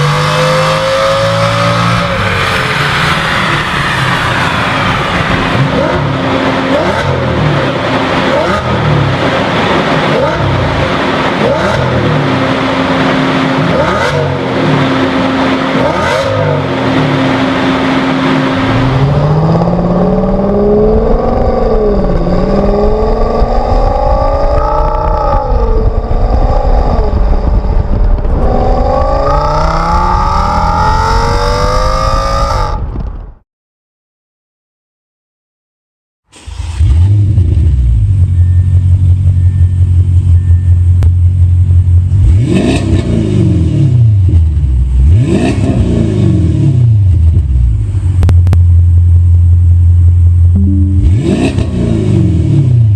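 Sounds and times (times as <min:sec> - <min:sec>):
car engine accelerating hard: 0:00.0 - 0:32.8, 0:41.7 - 0:48.3, 0:50.6 - 0:52.9.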